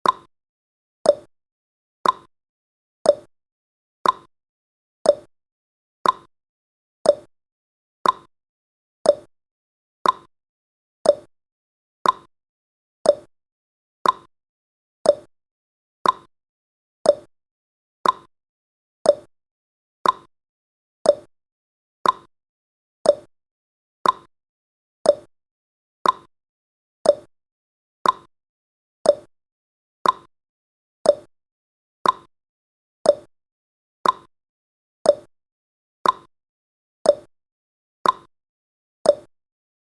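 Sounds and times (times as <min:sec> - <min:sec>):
timer ticking: 0:00.0 - 0:00.3, 0:01.1 - 0:01.3, 0:02.0 - 0:02.3, 0:03.1 - 0:03.3, 0:04.0 - 0:04.3, 0:05.1 - 0:05.3, 0:06.0 - 0:06.3, 0:07.0 - 0:07.3, 0:08.0 - 0:08.3, 0:09.0 - 0:09.3, 0:10.0 - 0:10.3, 0:11.0 - 0:11.3, 0:12.0 - 0:12.3, 0:13.0 - 0:13.3, 0:14.0 - 0:14.3, 0:15.0 - 0:15.3, 0:16.0 - 0:16.3, 0:17.0 - 0:17.3, 0:18.0 - 0:18.3, 0:19.0 - 0:19.3, 0:20.0 - 0:20.3, 0:21.0 - 0:21.3, 0:22.0 - 0:22.3, 0:23.0 - 0:23.3, 0:24.0 - 0:24.3, 0:25.0 - 0:25.3, 0:26.0 - 0:26.3, 0:27.0 - 0:27.3, 0:28.0 - 0:28.3, 0:29.0 - 0:29.3, 0:30.0 - 0:30.3, 0:31.0 - 0:31.3, 0:32.0 - 0:32.3, 0:33.0 - 0:33.3, 0:34.0 - 0:34.3, 0:35.1 - 0:35.3, 0:36.0 - 0:36.3, 0:37.1 - 0:37.3, 0:38.0 - 0:38.3, 0:39.1 - 0:39.3.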